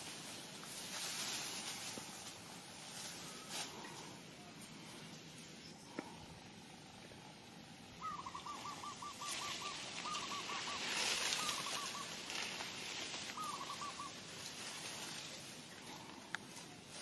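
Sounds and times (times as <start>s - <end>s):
bird calling repeated notes: 8.0s - 12.6s, 13.2s - 14.3s.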